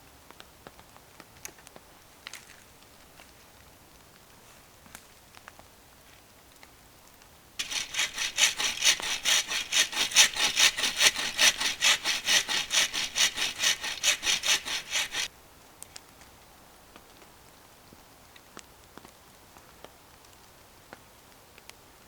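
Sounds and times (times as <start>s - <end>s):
hand saw cutting wood: 7.6s - 15.3s.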